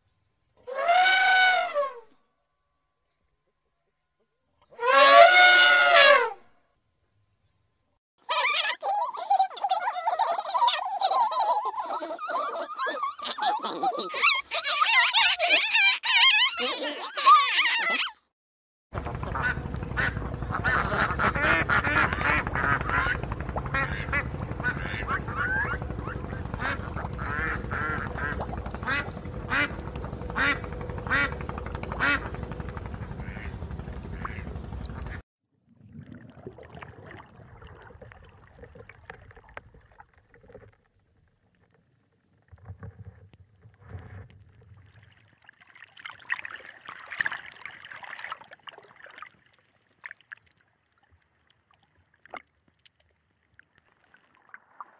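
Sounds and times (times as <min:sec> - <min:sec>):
faint water sounds: 0:19.0 - 0:54.9
geese calling: 0:19.3 - 0:35.2.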